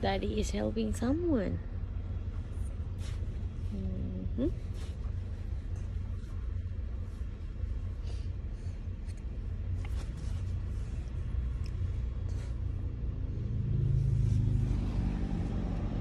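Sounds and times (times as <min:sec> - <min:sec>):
vehicle passing close by: 0:12.7 - 0:16.0.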